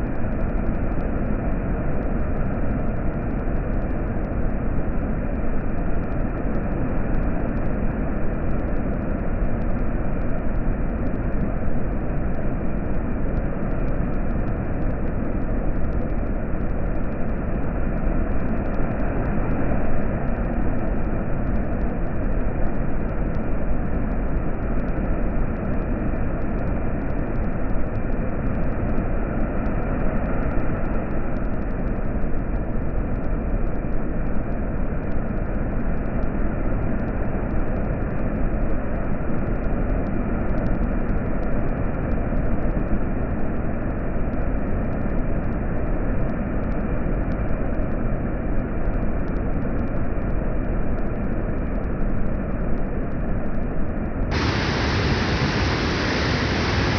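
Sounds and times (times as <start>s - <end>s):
water rushing through a dam: 54.3s - 56.9s.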